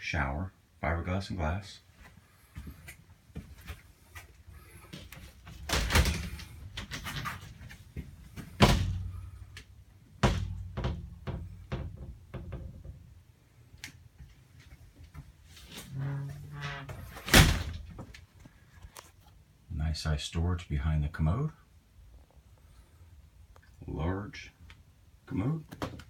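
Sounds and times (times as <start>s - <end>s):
doors opening and closing: 5.5s - 7.6s, 15.5s - 18.1s
loud knocks: 10.2s - 12.9s.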